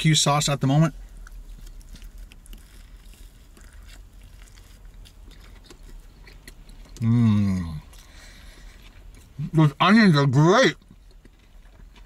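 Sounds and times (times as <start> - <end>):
person chewing burger: 0.8 - 9.8, 10.7 - 12.0.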